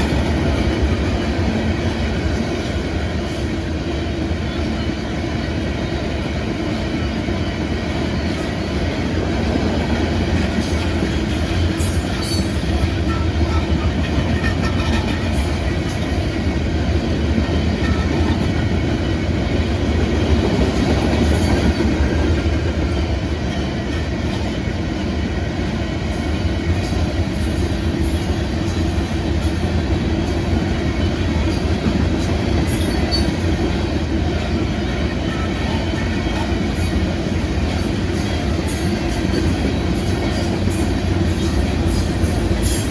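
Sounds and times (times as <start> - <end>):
train wheels rumbling over rails: 0.0 - 42.9.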